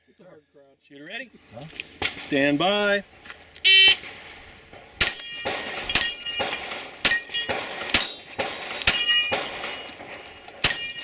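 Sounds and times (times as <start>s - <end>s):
steel target clanging: 4.9s - 11.0s
gunshots: 5.0s - 11.0s.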